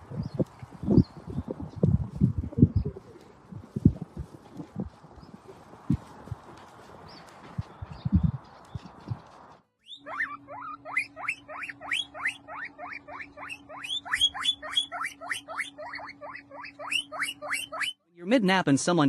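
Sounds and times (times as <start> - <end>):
steady low hum: 0.0 - 17.9
small animal squeaking: 9.8 - 18.0.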